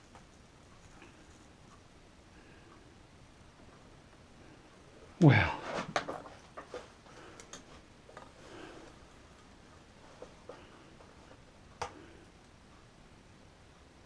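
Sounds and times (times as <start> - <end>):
clicks and light taps: 5.9 - 12.8.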